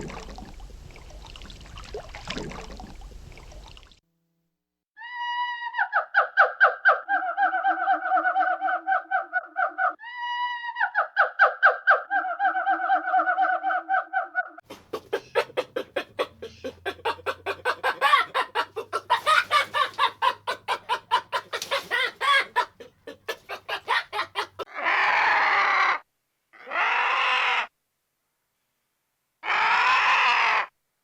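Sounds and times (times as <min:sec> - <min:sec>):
chickens clucking: 0:14.7 - 0:24.7
harsh rasping calls: 0:14.7 - 0:25.7.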